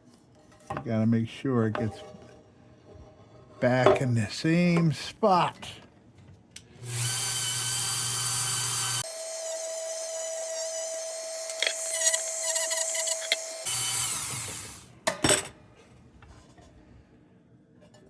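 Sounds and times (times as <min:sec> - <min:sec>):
small power tool whining: 0:06.8 - 0:14.9.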